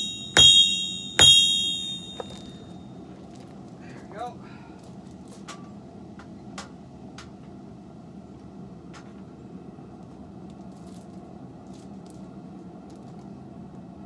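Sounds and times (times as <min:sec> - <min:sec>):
forge humming: 0:00.0 - 0:02.7.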